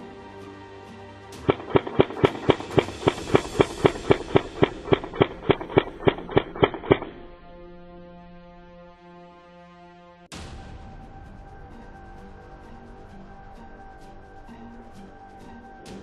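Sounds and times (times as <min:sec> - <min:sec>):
sustained music tones: 0:00.0 - 0:16.0
sharp percussive beat: 0:01.4 - 0:07.2.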